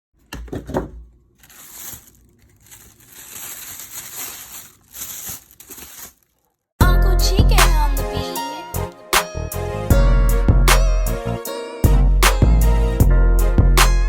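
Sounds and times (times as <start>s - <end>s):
crinkling and rustling: 0.2s - 6.7s.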